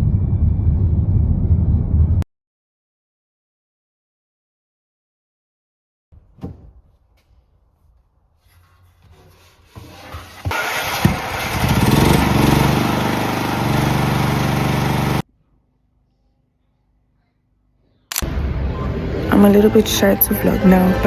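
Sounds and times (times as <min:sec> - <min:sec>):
motor running with steady hum: 0:11.1 - 0:15.2.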